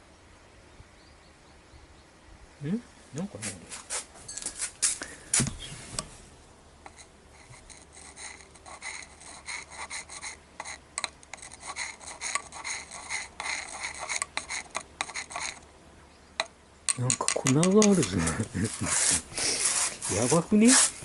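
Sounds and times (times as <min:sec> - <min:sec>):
hand scraping strokes on a part: 0:06.9 - 0:15.6, 0:17.5 - 0:21.0.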